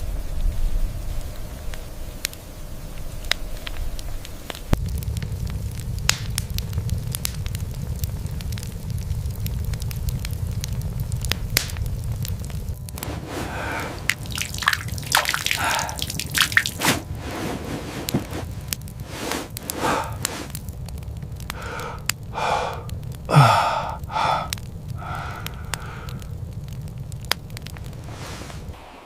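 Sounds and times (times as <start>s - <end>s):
steady low rumble: 0.1s - 28.8s
wet squishing and dripping: 13.0s - 17.2s, 24.0s - 26.3s
breathy gasp-like vocal sounds: 13.4s - 14.3s, 15.3s - 16.2s, 19.5s - 20.6s, 21.5s - 26.4s.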